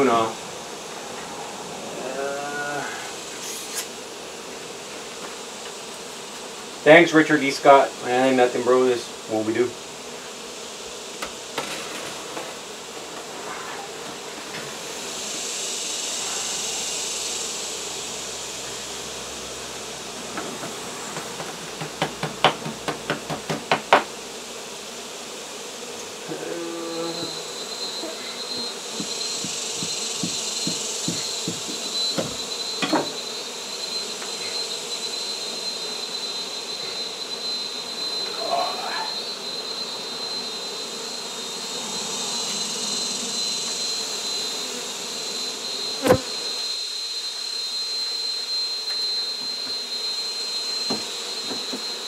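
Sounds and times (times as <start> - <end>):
honey bees buzzing: 0.0 - 52.0
thin steady high tone: 14.6 - 20.3, 26.2 - 52.0.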